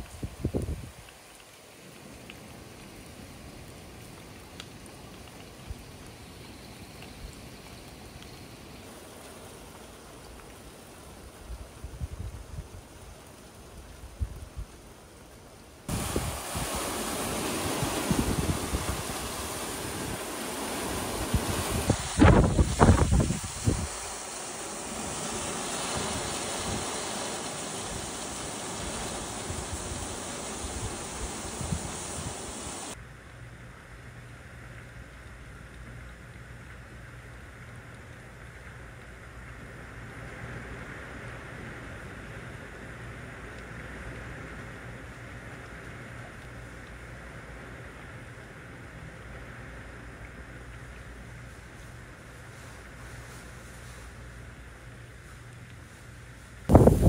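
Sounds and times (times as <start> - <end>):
wind buffets on microphone: 0.0 - 1.1, 11.5 - 12.8, 15.9 - 24.1, 25.2 - 33.0, 56.7 - 57.0
sharp raindrop ticks: 0.0 - 16.8, 17.5 - 56.9
steady rain falling: 0.0 - 57.0
storm wind rushing: 15.9 - 33.0, 56.7 - 57.0.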